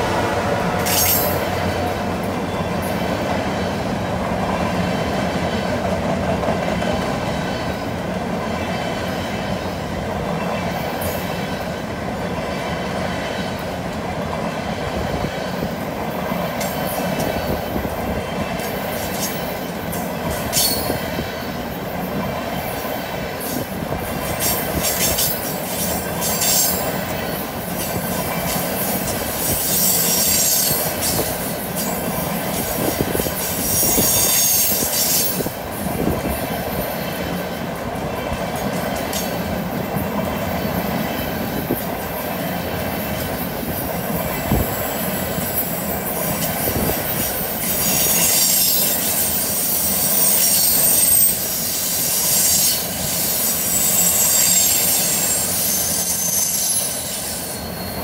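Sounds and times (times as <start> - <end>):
train wheels clattering on rails: 0.0 - 58.0
wheel flange squeal: 44.8 - 58.0.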